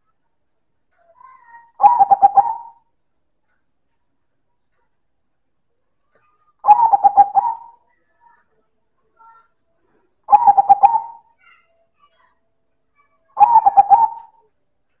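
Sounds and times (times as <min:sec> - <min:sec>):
dove cooing: 0:01.8 - 0:02.8, 0:06.6 - 0:07.8, 0:10.3 - 0:11.3, 0:13.4 - 0:14.5.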